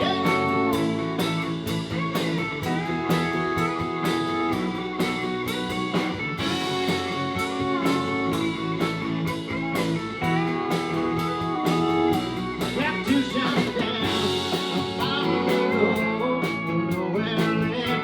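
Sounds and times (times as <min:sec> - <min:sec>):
bent guitar notes: 0:00.0 - 0:18.0
steady drum beat: 0:00.0 - 0:18.0.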